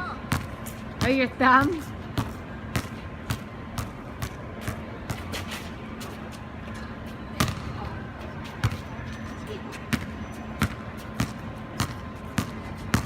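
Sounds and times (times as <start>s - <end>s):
basketball bouncing on wet court: 0.3s - 5.2s, 7.4s - 7.7s, 9.9s - 13.0s.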